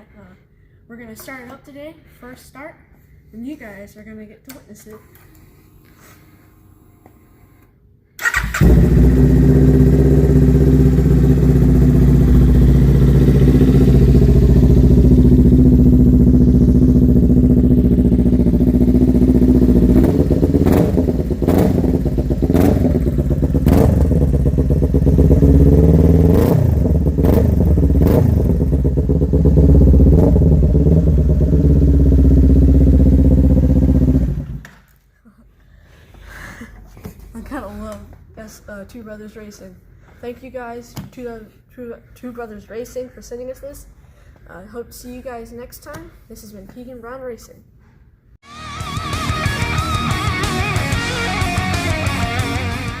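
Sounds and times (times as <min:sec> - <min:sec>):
motorcycle engine idling and revving: 0:08.2 - 0:34.6.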